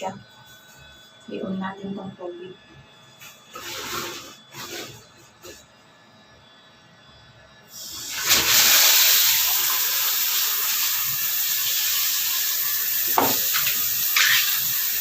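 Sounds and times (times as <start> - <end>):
shower head spraying water: 8.0 - 15.0.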